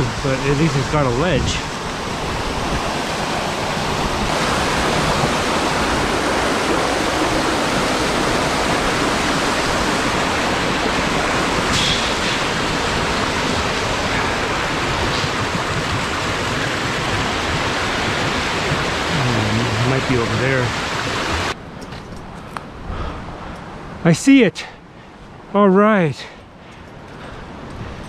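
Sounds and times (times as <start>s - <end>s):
creek water rushing over rocks: 0.0s - 21.6s.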